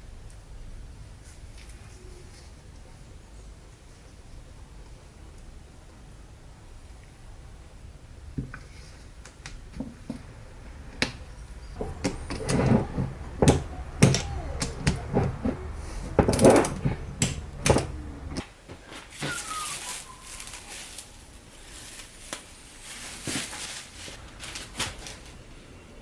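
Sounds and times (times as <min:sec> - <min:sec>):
sharp knocks and clicks of tools: 0:11.8 - 0:18.4.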